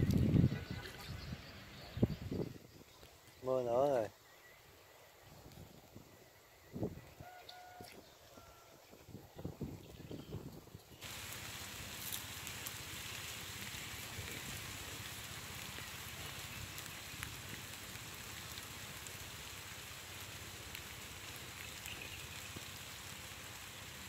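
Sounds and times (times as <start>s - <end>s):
sharp ticks of raindrops: 0.0s - 0.4s, 11.0s - 24.0s
steady rain hiss: 0.0s - 24.0s.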